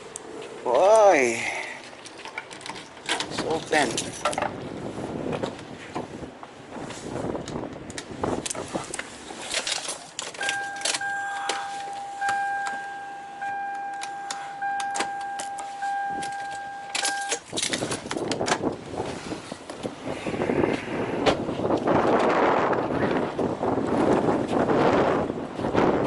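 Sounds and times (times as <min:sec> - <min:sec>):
wind-like outdoor noise: 0:00.0 - 0:26.0
high-pitched tone: 0:10.4 - 0:17.4.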